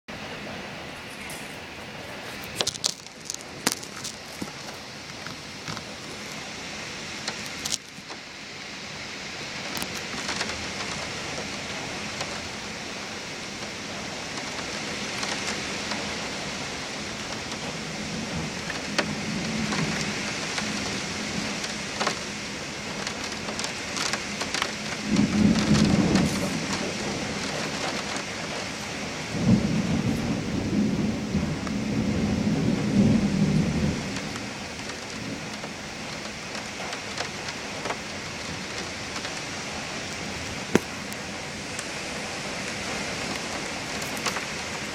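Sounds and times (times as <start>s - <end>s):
heavy rain falling: 0.1s - 44.9s
close raindrop ticks: 2.4s - 6.5s, 7.2s - 8.2s, 9.6s - 44.9s
low thunder rumbles: 9.6s - 44.9s.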